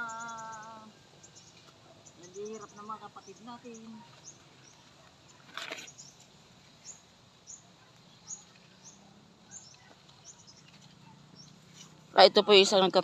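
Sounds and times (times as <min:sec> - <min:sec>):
faint bird chirping: 0:00.0 - 0:13.0
brief rustle: 0:05.4 - 0:06.2.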